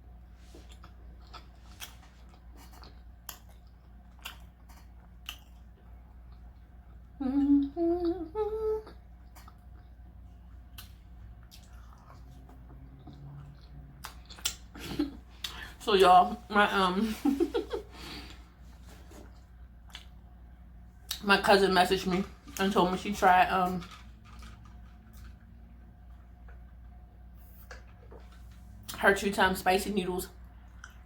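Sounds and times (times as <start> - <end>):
chewing food: 0.3 - 8.2, 8.9 - 15.7, 19.5 - 20.3, 30.4 - 31.0
person humming: 7.2 - 9.0.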